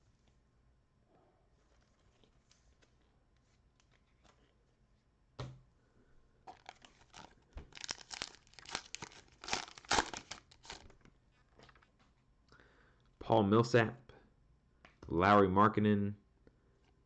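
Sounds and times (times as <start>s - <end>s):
cellophane ripping: 6.5s - 10.9s
cellophane crinkling: 6.5s - 11.8s.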